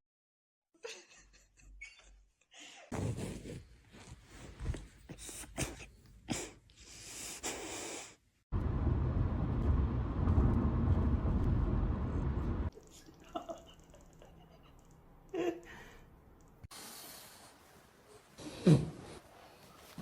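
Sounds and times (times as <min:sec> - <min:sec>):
low rushing noise: 0:08.5 - 0:12.7.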